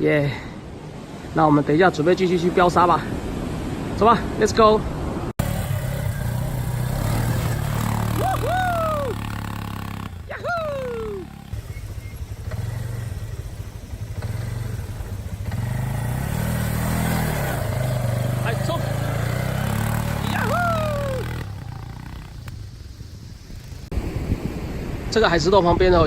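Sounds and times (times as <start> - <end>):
atv engine running: 5.4 - 23.9
rising and falling whoops: 7.8 - 11.5, 19.6 - 22.0.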